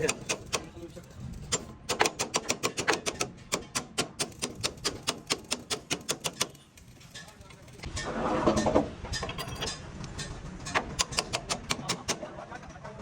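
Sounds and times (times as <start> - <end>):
hammer tapping on metal: 1.5 - 6.6, 9.2 - 12.2.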